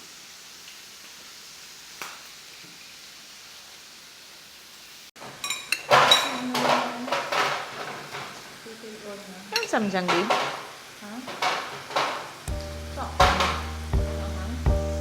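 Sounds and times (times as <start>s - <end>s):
meat sizzling in a pan: 0.0s - 15.0s
metal utensils clinking on dishes: 5.2s - 8.5s, 9.5s - 12.5s, 13.2s - 13.9s.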